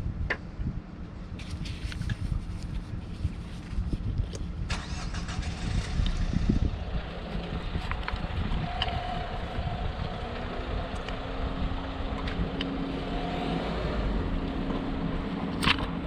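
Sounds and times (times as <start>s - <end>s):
diesel engine idling: 4.7s - 15.5s.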